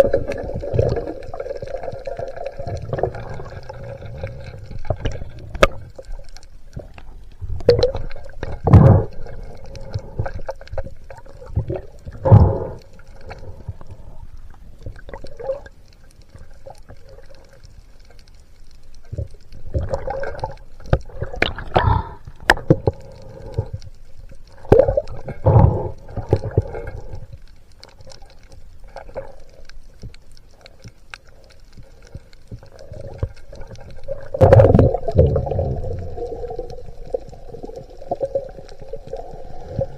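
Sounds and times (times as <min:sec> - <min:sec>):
water gurgling and bubbling: 0:00.0 - 0:14.2, 0:14.8 - 0:15.8, 0:19.1 - 0:23.8, 0:24.5 - 0:27.3, 0:32.6 - 0:39.9.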